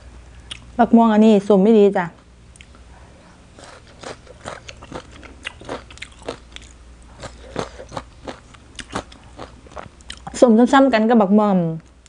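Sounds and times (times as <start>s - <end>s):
crisp chewing crunches: 3.6s - 10.4s.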